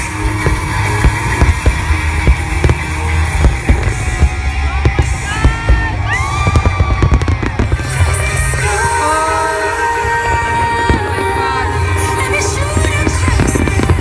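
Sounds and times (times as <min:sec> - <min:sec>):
fireworks banging and crackling: 0:00.0 - 0:14.0
loud music with heavy bass: 0:00.0 - 0:14.0.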